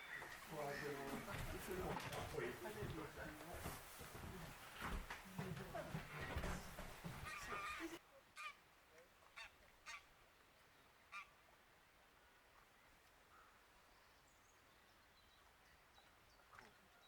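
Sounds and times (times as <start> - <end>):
distant geese honking: 0.0 - 3.2, 5.6 - 8.6.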